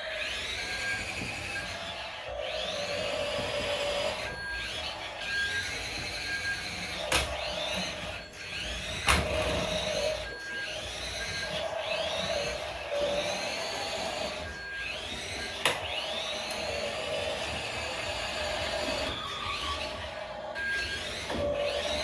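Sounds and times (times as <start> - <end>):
toy truck motor whining: 0.0 - 22.0.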